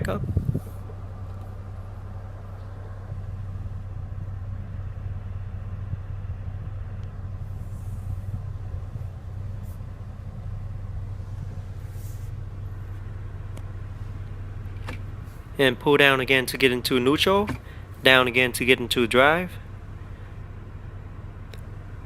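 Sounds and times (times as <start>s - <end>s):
car engine idling: 0.0s - 22.0s
faint clicks: 21.5s - 21.7s.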